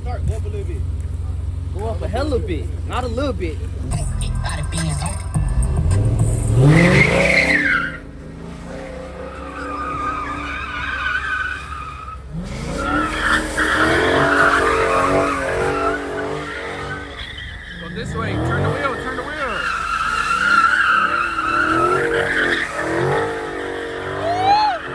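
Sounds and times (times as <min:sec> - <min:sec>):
car engine revving: 0:00.0 - 0:24.9
tyres squealing: 0:00.0 - 0:24.9.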